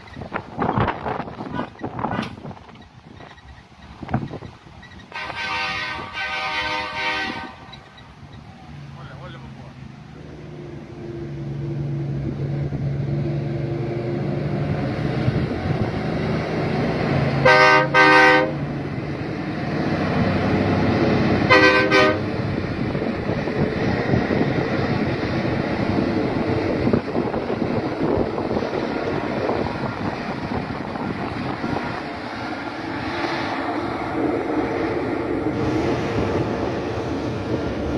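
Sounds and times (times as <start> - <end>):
diesel truck engine under load: 0.0 - 37.9
truck air horn blasts: 5.1 - 7.9, 17.4 - 18.7, 21.4 - 22.3.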